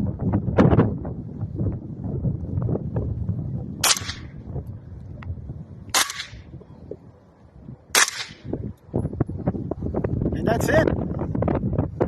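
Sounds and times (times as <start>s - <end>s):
wind buffeting microphone: 0.0s - 12.0s
suppressed rifle shots: 3.8s - 4.4s, 5.9s - 6.5s, 7.9s - 8.5s.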